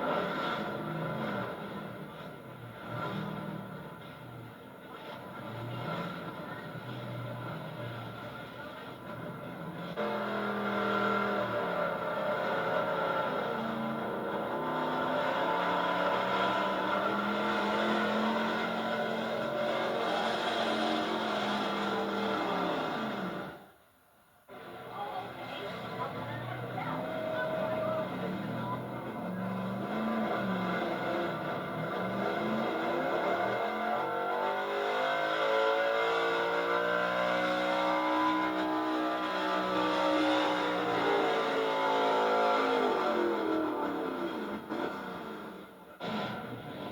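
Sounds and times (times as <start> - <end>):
truck engine running hard: 0.0 - 23.7, 24.5 - 46.9.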